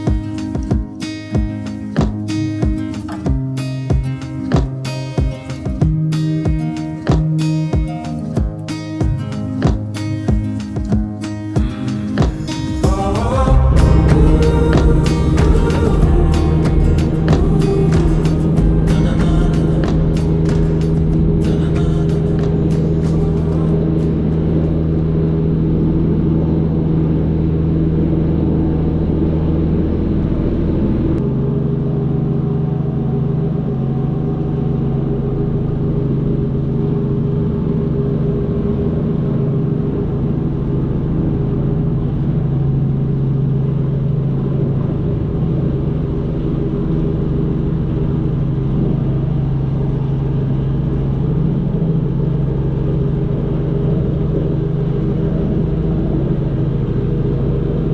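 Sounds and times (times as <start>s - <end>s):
engine running steadily: 11.7s - 57.9s.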